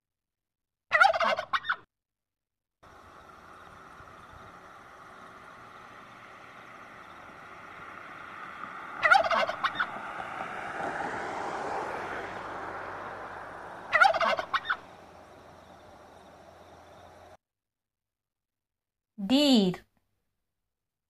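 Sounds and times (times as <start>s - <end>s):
turkey gobbling: 0.9s - 1.8s, 8.7s - 10.0s, 13.8s - 15.8s.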